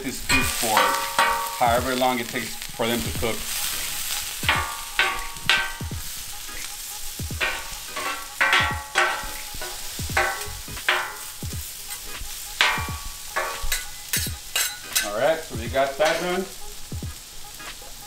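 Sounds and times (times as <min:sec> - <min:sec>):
metal spatulas clanking on griddle: 0:00.0 - 0:16.6
vegetables sizzling in oil: 0:00.0 - 0:18.0.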